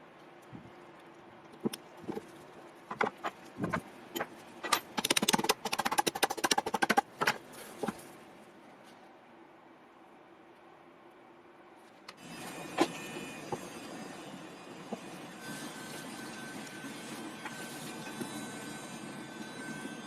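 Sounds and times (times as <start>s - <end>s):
fast rattling clicks: 2.9s - 7.4s
tool parts knocking and clicking: 2.9s - 8.0s.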